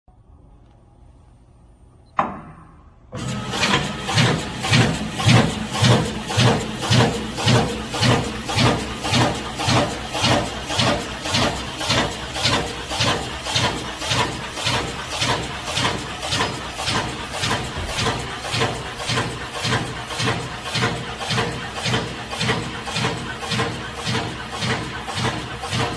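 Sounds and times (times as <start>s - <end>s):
sharp knock: 2.2s - 2.8s
meat slicer running rhythmically: 3.2s - 25.9s.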